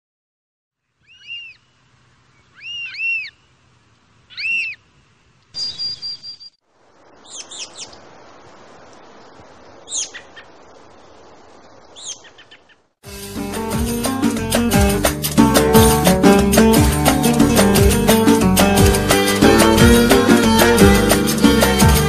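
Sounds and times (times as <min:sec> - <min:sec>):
birds chirping: 0:00.9 - 0:12.9.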